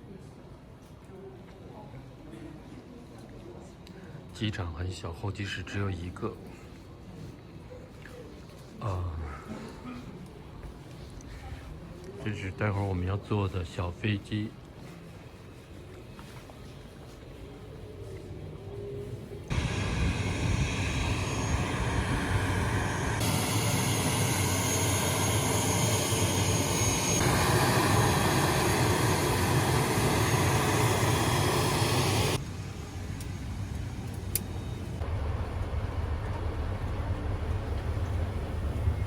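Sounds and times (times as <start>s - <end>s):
airliner engine noise: 19.5s - 39.0s.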